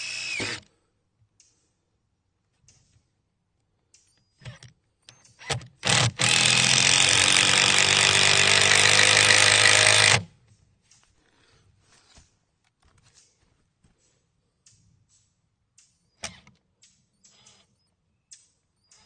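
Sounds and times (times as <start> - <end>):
power driver driving screw into wood: 0.0 - 0.7, 4.4 - 10.3, 16.2 - 16.6.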